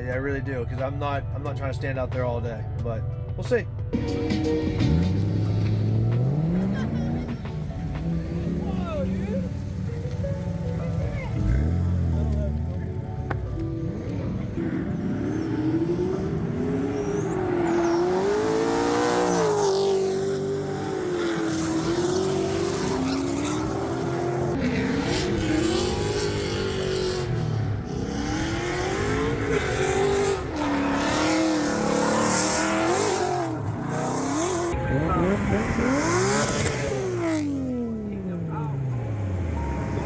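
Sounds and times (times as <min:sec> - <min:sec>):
car engine revving: 0:04.6 - 0:40.0.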